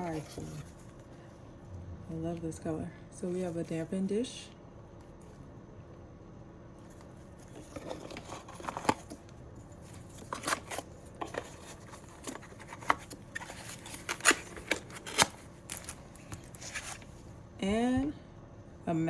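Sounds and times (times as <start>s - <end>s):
packaging crinkling and rustling: 6.9s - 17.2s.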